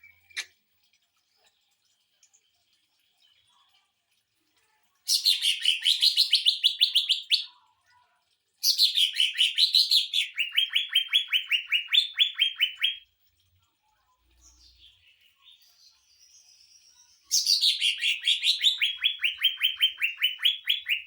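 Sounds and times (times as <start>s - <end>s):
bird singing rapid notes: 16.2s - 21.0s.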